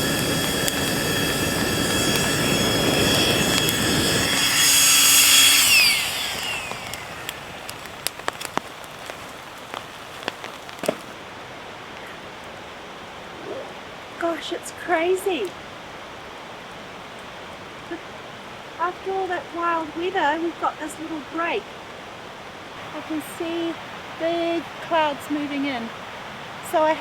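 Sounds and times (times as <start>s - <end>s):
high mechanical whine: 0.0s - 11.2s
hiss: 0.0s - 11.2s.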